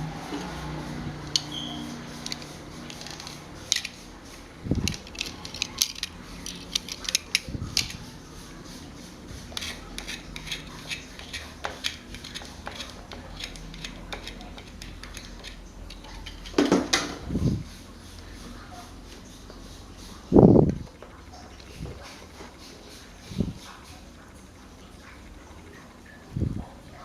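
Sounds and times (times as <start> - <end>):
metal parts clinking: 4.8 - 8.0.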